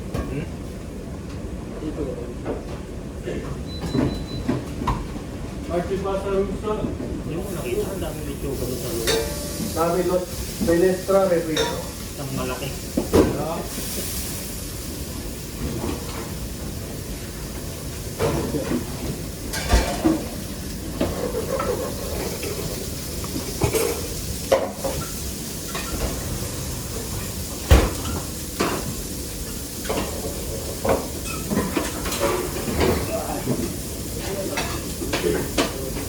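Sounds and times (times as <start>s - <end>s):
pots and dishes clattering: 9.0s - 9.9s, 11.4s - 11.9s, 18.2s - 26.3s, 27.1s - 36.0s.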